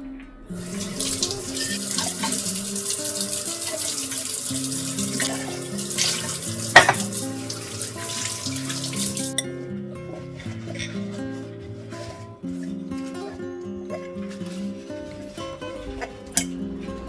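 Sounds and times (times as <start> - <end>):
tap water running into sink: 0.2 - 9.4.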